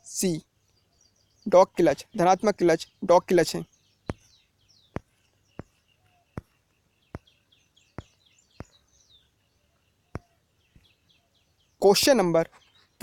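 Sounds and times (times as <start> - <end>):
faint bird chirping: 0.0 - 13.0.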